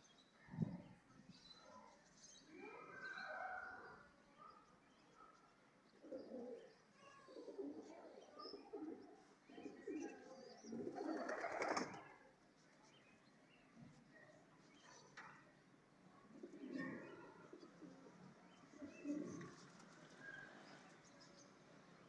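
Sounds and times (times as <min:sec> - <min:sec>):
pigeons cooing: 0:06.0 - 0:06.7, 0:07.4 - 0:12.0, 0:16.3 - 0:18.1, 0:18.7 - 0:19.6.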